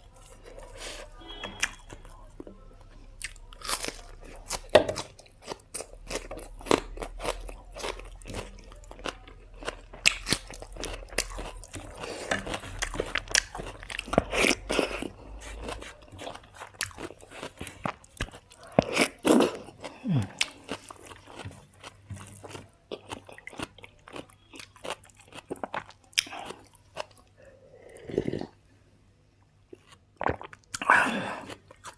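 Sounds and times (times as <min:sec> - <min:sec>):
person chewing crunchy food: 0:00.0 - 0:02.5, 0:03.2 - 0:28.6, 0:29.7 - 0:31.9.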